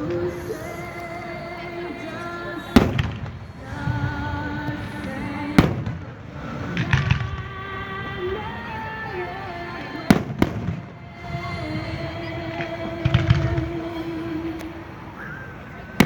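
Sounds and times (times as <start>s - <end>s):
music with long held notes: 0.0s - 15.2s
fireworks bursting in bangs: 2.6s - 14.5s.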